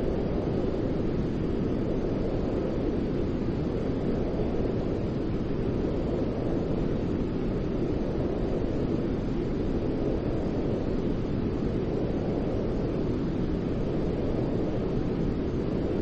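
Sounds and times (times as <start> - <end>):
deep white noise: 0.0 - 16.0.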